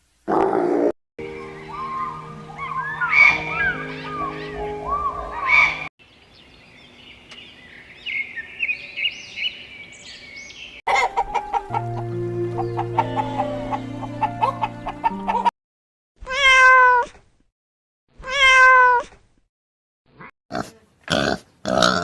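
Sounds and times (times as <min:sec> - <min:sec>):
background music with steady tones: 0:01.2 - 0:05.8, 0:10.9 - 0:15.5
chickens clucking: 0:10.9 - 0:15.5.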